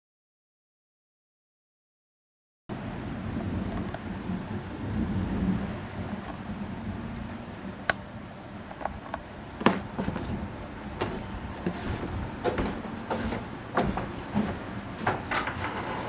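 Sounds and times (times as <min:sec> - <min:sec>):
sharp knocks and clicks: 0:11.0 - 0:15.7.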